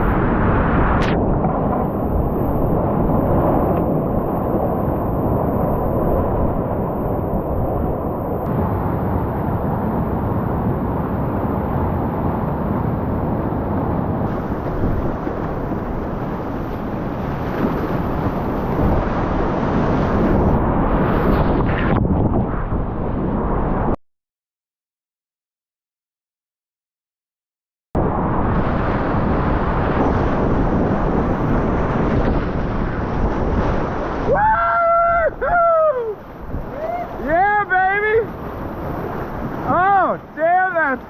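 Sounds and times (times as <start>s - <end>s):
whitewater rapids rushing: 33.7s - 41.0s.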